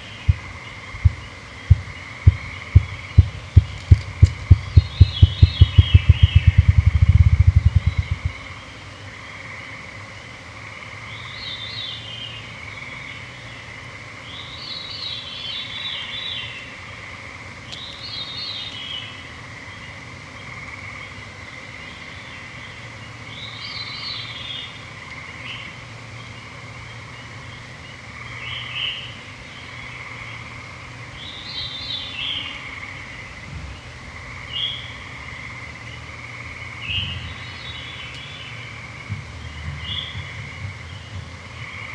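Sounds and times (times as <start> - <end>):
songbirds singing: 0.0 - 41.9
low throbbing: 0.3 - 8.4.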